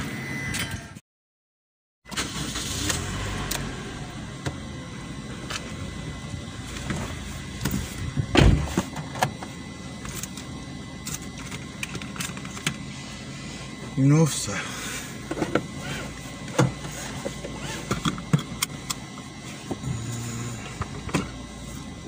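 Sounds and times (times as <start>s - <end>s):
loud thump: 8.3s - 8.8s.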